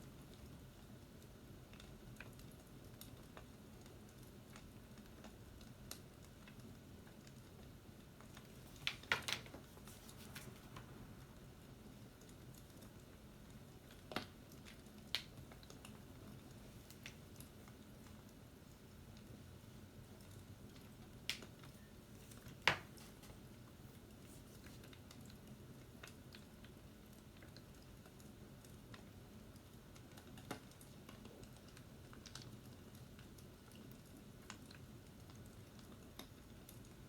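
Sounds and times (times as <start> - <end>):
faint sharp clicks and taps: 1.2 - 11.0, 12.2 - 19.4, 20.0 - 37.0.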